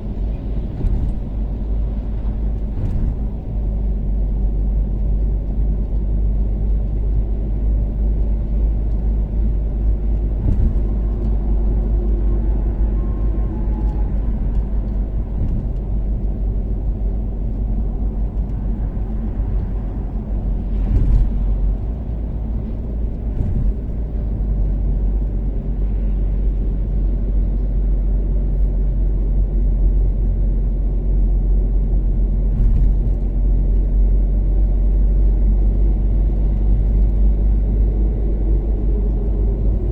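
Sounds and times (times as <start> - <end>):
car engine and tyre noise cruising: 0.0 - 39.9
thumps from road surface: 2.1 - 3.6, 10.3 - 11.1, 20.7 - 21.8, 32.5 - 33.2.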